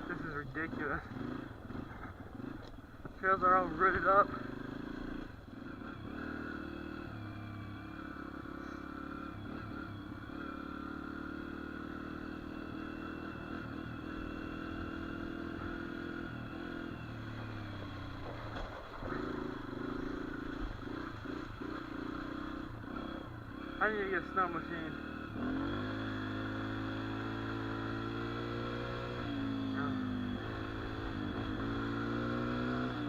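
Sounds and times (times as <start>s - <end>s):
dirt bike engine running: 0.0s - 33.0s.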